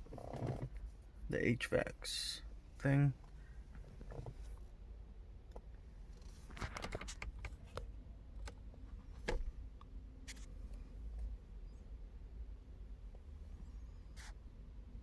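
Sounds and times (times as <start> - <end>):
low steady rumble: 7.3 - 15.0.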